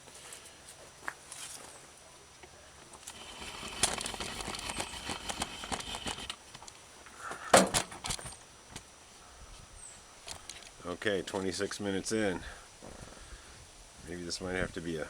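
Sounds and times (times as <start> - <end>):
crackling and clicks of parts handled: 2.4 - 8.9, 10.2 - 11.5.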